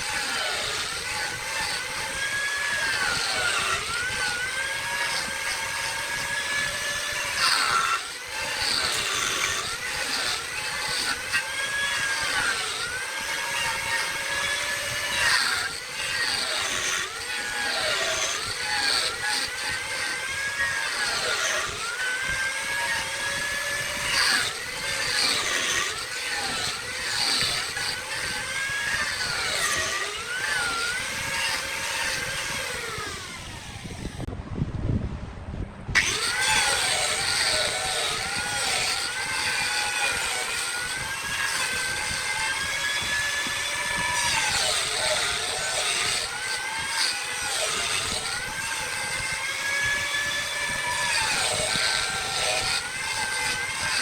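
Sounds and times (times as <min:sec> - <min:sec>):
wood lathe whine: 0:00.0 - 0:34.3, 0:35.9 - 0:54.0
tool cutting spinning wood: 0:00.0 - 0:34.4, 0:35.9 - 0:54.0
low rumble: 0:33.6 - 0:36.0.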